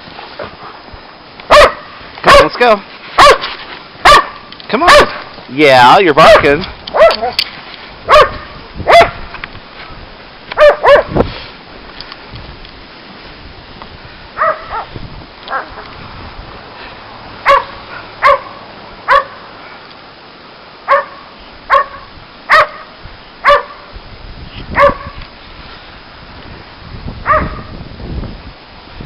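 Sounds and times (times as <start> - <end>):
dog barking: 1.5 - 2.6, 3.2 - 5.2, 6.3 - 7.4, 8.1 - 9.2, 10.6 - 11.1, 14.4 - 14.9, 15.5 - 15.9, 17.4 - 19.4, 20.9 - 23.9, 24.8 - 25.2, 27.2 - 27.7.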